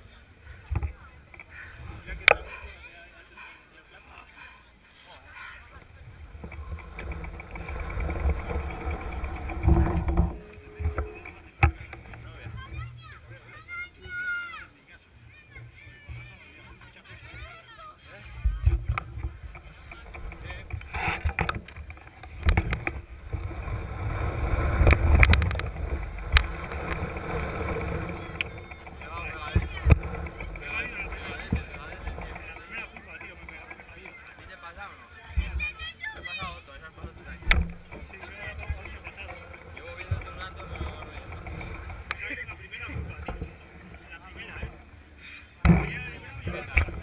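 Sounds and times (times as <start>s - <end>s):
bike rattles and knocks: 5.2s - 14.4s, 18.3s - 47.0s
fast regular ticking: 5.3s - 13.5s, 18.5s - 34.8s
wind and trail rumble: 5.3s - 14.4s, 18.2s - 47.0s.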